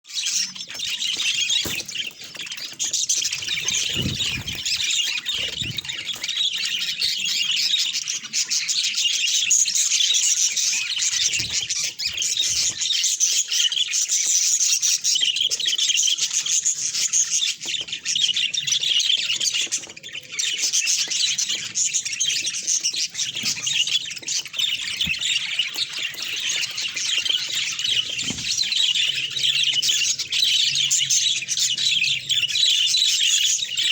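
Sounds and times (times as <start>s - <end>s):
budgerigars chattering: 0.2s - 9.3s.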